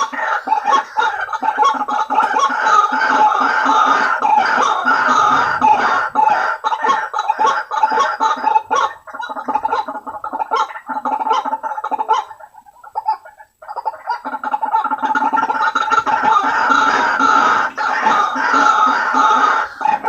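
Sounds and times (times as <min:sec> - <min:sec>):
waterhen harsh croaking calls: 0:00.0 - 0:20.0.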